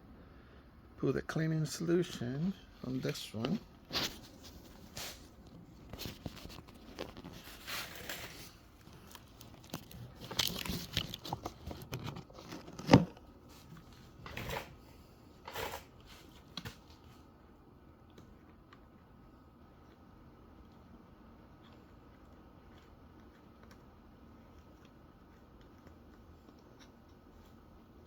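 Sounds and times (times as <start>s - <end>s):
rustling and crinkling: 2.6s - 17.3s.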